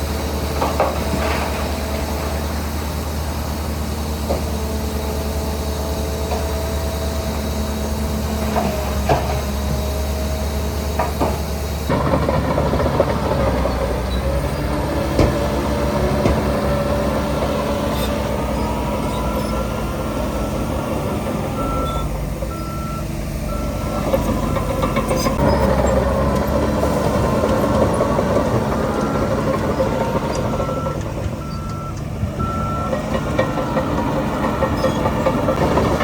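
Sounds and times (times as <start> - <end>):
diesel construction machinery working: 0.0 - 36.0
reversing alarm beeps: 18.0 - 25.7, 30.3 - 35.7.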